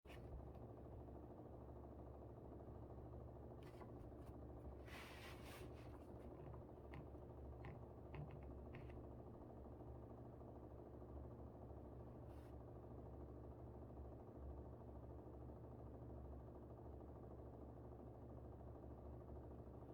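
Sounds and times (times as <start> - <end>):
air conditioner humming: 0.0 - 16.1
short rustle: 3.7 - 6.4.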